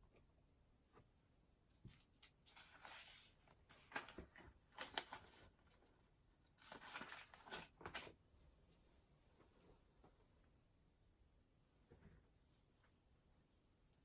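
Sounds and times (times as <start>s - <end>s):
paper rustling: 1.9s - 5.8s, 6.5s - 8.2s.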